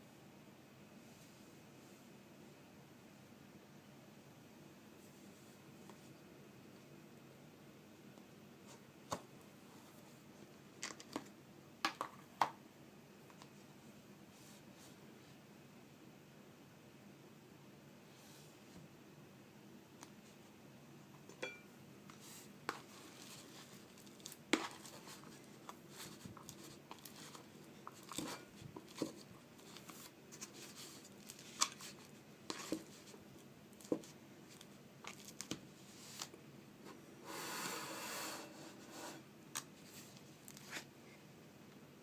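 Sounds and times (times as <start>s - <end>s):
crinkling rustle: 22.1s - 36.4s.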